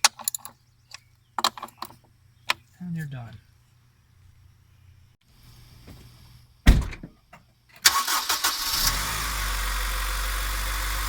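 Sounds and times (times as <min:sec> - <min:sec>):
loud thump: 0:06.6 - 0:07.2
car engine cranking and idling: 0:07.8 - 0:11.0.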